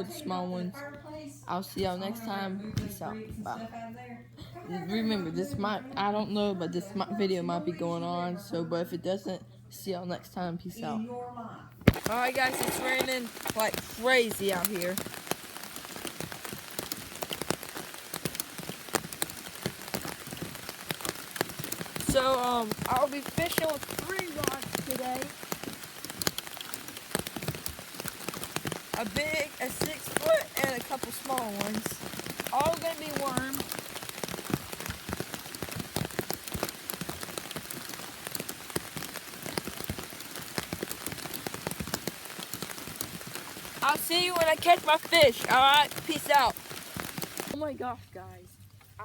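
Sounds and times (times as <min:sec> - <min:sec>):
heavy rain falling: 0:11.9 - 0:47.7.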